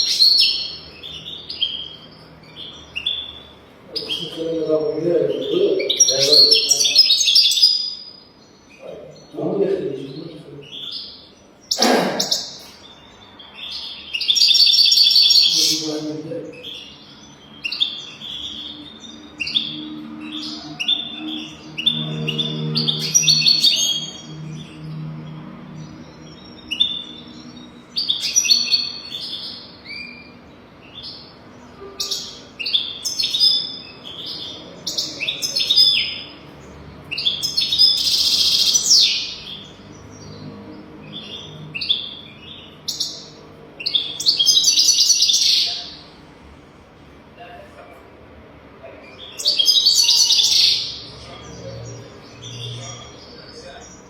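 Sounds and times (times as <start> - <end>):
goldfinch twittering song: 49.1 - 54.0.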